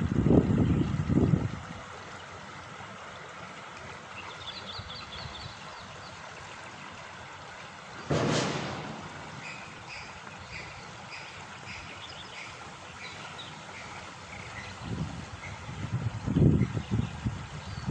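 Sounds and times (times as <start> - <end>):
wind bumps on microphone: 0.0 - 1.7, 14.8 - 17.9
steady outdoor hiss: 0.0 - 17.9.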